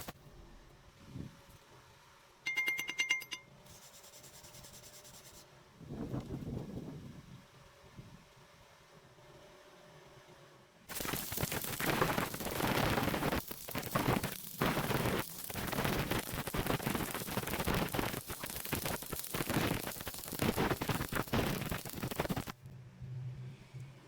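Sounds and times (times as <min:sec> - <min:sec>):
electric welding arc crackling: 0:10.9 - 0:22.6.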